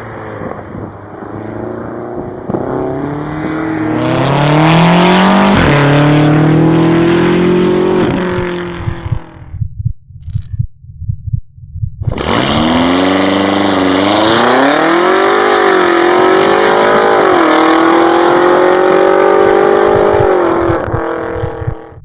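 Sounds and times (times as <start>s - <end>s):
car engine revving through gears: 0.3s - 9.2s, 12.1s - 22.0s
low pulsing heartbeat thump: 7.9s - 12.7s, 19.0s - 22.0s.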